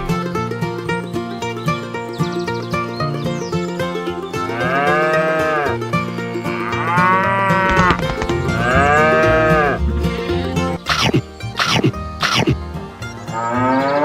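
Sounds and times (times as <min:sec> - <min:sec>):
background music: 0:00.0 - 0:14.0
cattle mooing: 0:04.6 - 0:05.8, 0:06.4 - 0:10.4.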